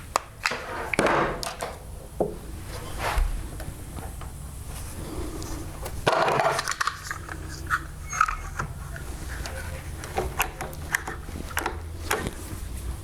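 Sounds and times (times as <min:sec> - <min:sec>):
steady low hum: 0:00.0 - 0:13.0
wood and tools clicking: 0:05.8 - 0:12.6.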